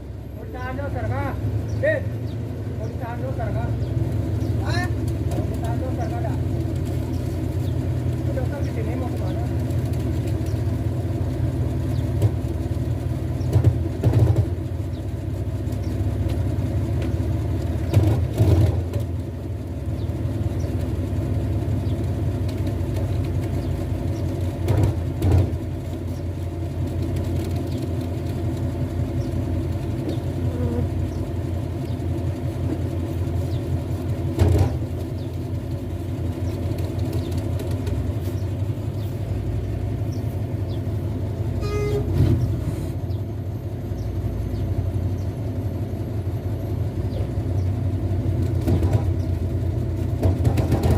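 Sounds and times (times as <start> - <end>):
truck diesel engine idling: 0.0 - 50.9.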